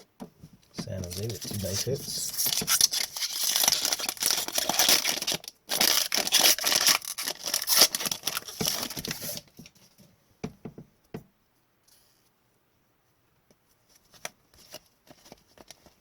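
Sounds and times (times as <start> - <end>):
foil wrapper crinkling and tearing: 0.8 - 9.4.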